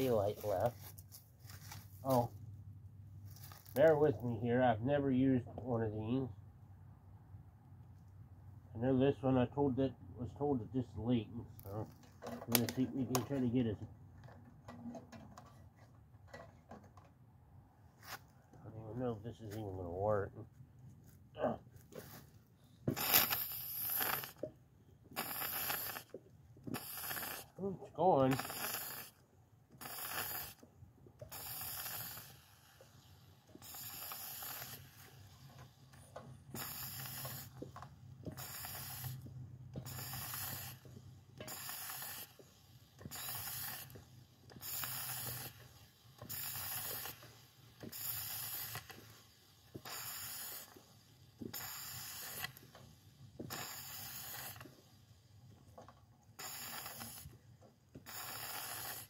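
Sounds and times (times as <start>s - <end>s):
pump hissing suction strokes: 0.0s - 2.3s, 22.0s - 24.5s, 25.1s - 30.6s, 31.2s - 54.9s, 56.4s - 59.0s.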